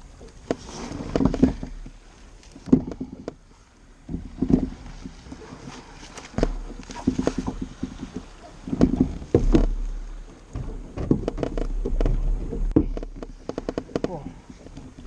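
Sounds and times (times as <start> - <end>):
wind rumble on microphone: 0.0 - 15.0
knocks and clicks on kayak: 0.2 - 3.4, 4.0 - 15.0.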